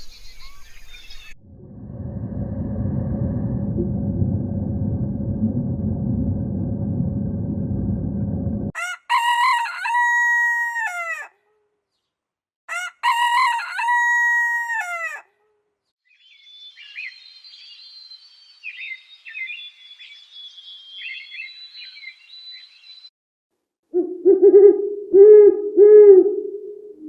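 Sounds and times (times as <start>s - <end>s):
small birds chirping and warbling: 0.0s - 1.4s, 16.0s - 23.1s
low noise: 1.4s - 8.7s
rooster crowing: 8.7s - 11.4s, 12.7s - 15.3s.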